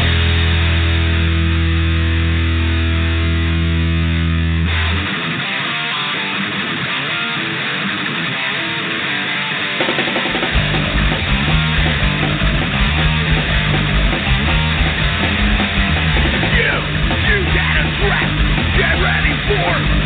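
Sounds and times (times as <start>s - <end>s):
electric guitar playing alone: 0.0s - 20.0s
punk rock song: 0.0s - 20.0s.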